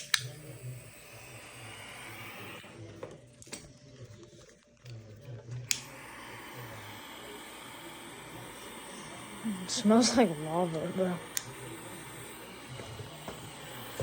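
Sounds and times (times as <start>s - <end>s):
heat tool switch click: 0.0s - 0.4s, 5.7s - 5.9s
heat tool blowing hiss: 0.0s - 2.9s, 5.7s - 14.0s.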